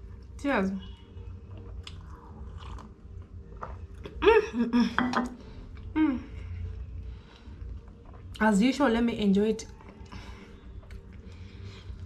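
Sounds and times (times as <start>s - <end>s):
chewing food: 1.2s - 4.2s, 6.6s - 8.6s, 9.6s - 12.0s.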